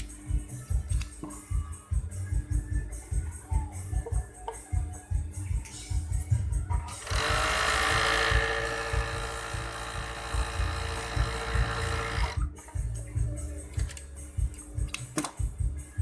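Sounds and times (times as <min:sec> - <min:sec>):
background music with steady beat: 0:00.0 - 0:16.0
sewing machine running: 0:07.0 - 0:12.4.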